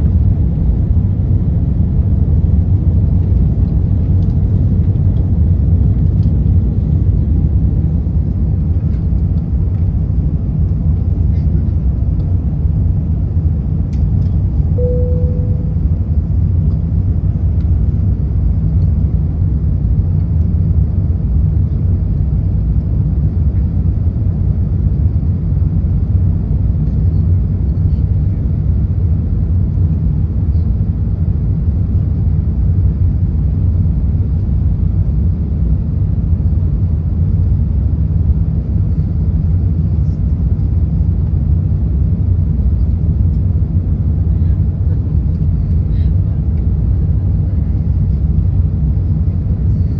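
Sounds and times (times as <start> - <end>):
aircraft cabin engine rumble: 0.0 - 49.9
single chime tone: 14.8 - 16.0.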